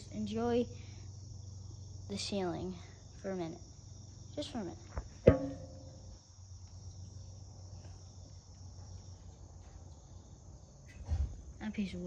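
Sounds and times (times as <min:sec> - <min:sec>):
crickets chirping: 0:00.0 - 0:12.0
sharp knock with ringing tail: 0:05.3 - 0:06.1.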